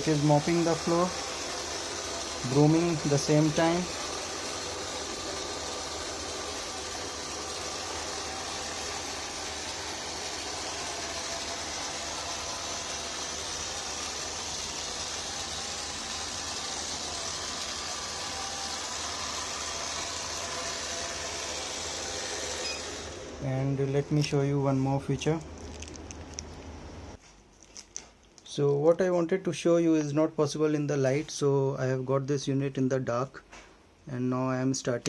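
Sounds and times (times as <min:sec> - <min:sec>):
robot vacuum cleaner running: 0:00.0 - 0:25.9.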